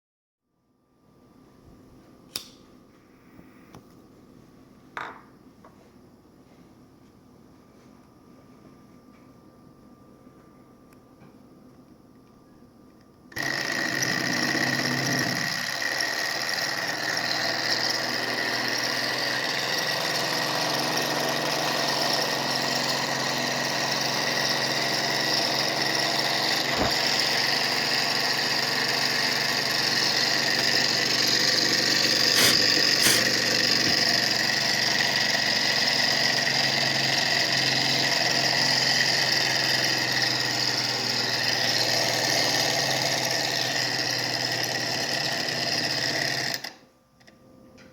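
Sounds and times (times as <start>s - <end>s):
small engine whirring: 13.3s - 46.8s.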